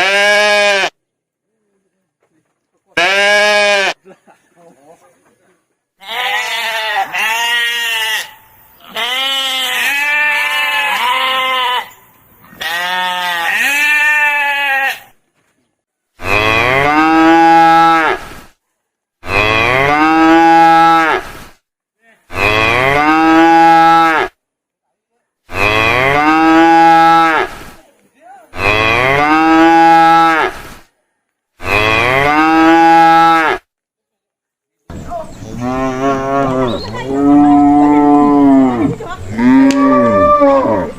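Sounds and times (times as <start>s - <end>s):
cattle mooing: 31.6s - 33.6s, 35.5s - 40.9s.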